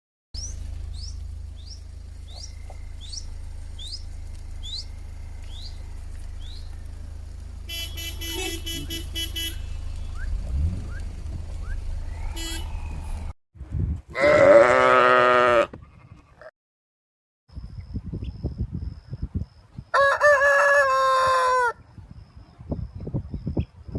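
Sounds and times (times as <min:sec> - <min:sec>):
farm animals bleating: 0:14.1 - 0:16.5.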